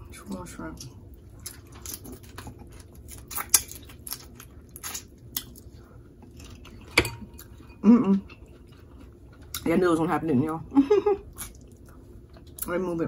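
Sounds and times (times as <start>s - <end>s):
person chewing wetly: 0.3s - 9.7s, 11.2s - 12.8s.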